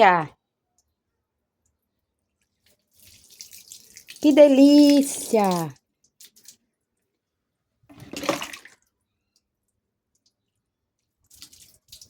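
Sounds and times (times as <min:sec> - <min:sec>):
water dripping: 0:01.6 - 0:07.1, 0:08.0 - 0:12.0
water splashing: 0:02.9 - 0:06.6, 0:07.9 - 0:08.8.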